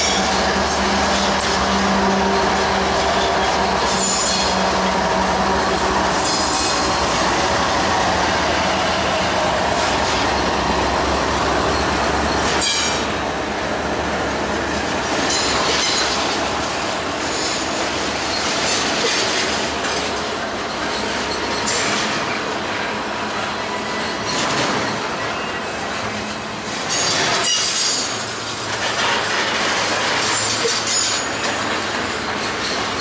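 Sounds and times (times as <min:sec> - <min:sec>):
diesel locomotive engine droning: 0:00.0 - 0:33.0
train wheels clattering over rails: 0:00.0 - 0:33.0
high-pitched wheel squeals: 0:11.6 - 0:13.1.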